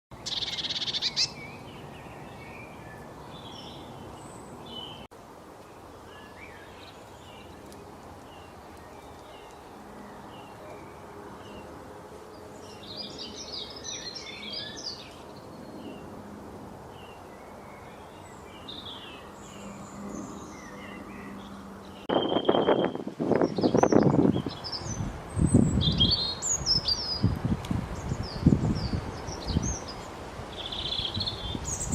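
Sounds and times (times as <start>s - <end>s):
birds chirping and calling: 0.1s - 5.1s, 12.6s - 16.1s, 17.0s - 27.4s, 28.0s - 31.9s.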